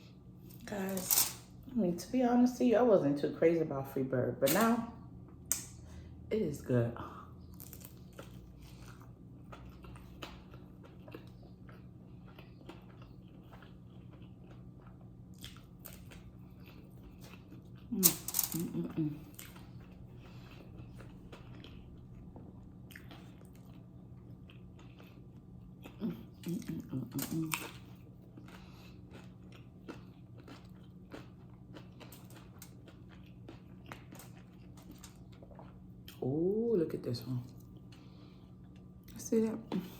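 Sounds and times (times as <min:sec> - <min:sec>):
faint steady hum: 0:00.0 - 0:39.9
person chewing food: 0:07.4 - 0:36.4, 0:37.5 - 0:39.2.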